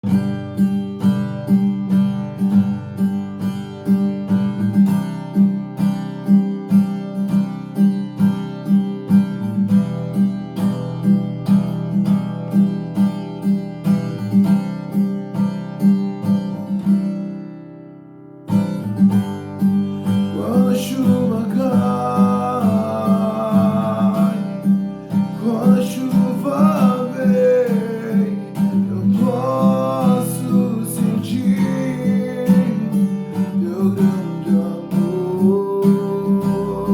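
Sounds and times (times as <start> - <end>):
acoustic guitar strumming: 0.0 - 36.9
person singing: 20.3 - 36.9.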